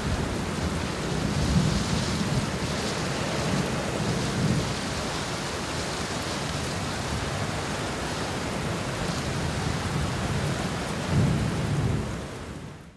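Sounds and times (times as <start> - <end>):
steady rain falling: 0.0 - 12.9
rolling thunder: 11.1 - 12.2.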